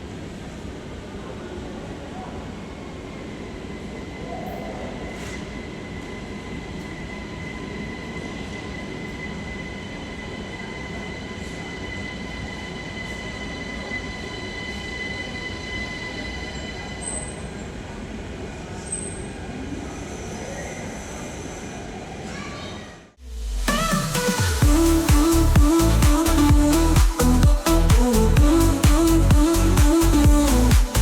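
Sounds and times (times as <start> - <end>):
train rumbling: 0.0 - 22.4, 23.6 - 31.0
high steady whine: 23.2 - 31.0.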